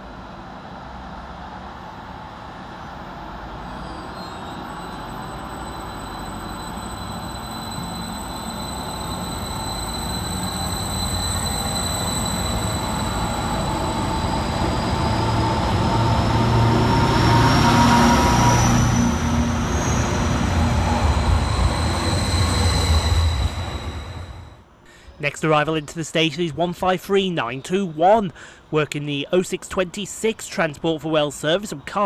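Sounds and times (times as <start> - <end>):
train engine rumble: 0.0 - 27.1
rising whine: 2.2 - 24.8.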